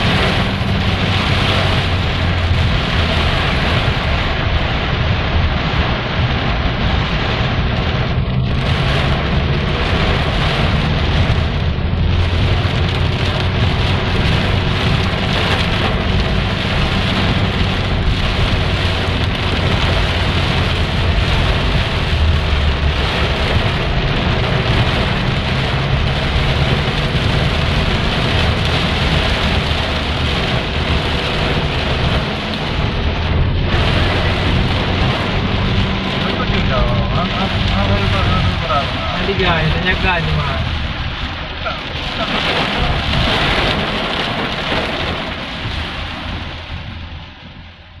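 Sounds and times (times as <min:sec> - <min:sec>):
deep rumble: 0:00.0 - 0:48.0
heavy rain pouring: 0:00.0 - 0:48.0.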